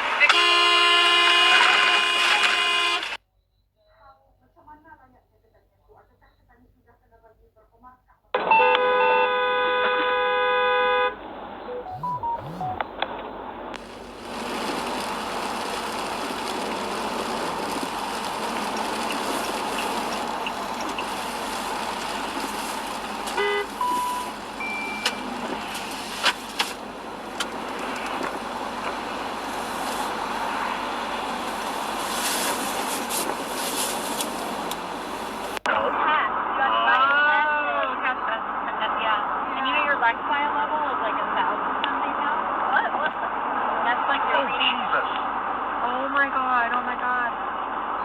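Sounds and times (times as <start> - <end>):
road noise from moving car: 0.0 - 3.2, 9.7 - 35.9
car horn toot: 0.2 - 3.2, 8.6 - 11.2, 11.8 - 12.8, 23.1 - 26.9
brief beeps: 3.3 - 4.0, 11.7 - 12.8, 23.4 - 25.4
clicks: 11.8 - 13.1, 13.7 - 30.2.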